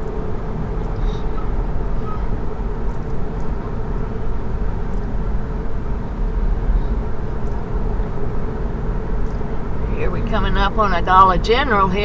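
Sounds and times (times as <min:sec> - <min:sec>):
road and tyre rumble in car: 0:00.0 - 0:12.0.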